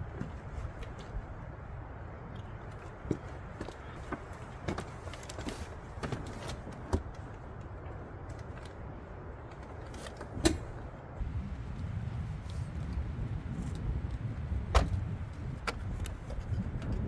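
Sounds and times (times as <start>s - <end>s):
vehicle rumble: 0.0s - 17.0s.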